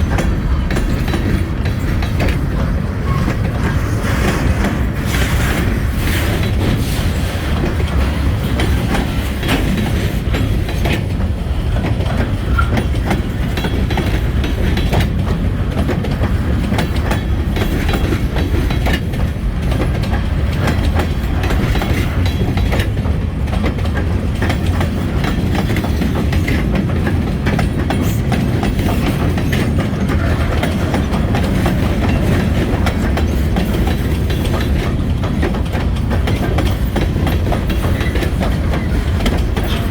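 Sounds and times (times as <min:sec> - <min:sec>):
freight train rumble: 0:00.0 - 0:39.9
wheel clicks over rail joints: 0:04.6 - 0:39.9.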